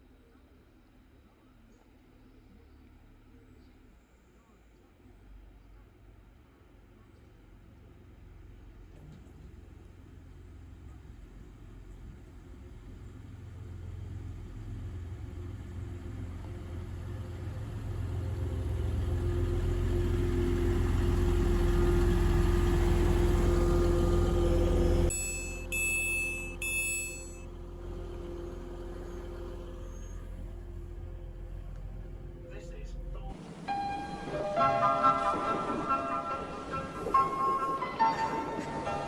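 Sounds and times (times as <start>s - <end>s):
diesel train engine rumble: 0.0s - 39.0s
short beeps: 25.1s - 27.5s.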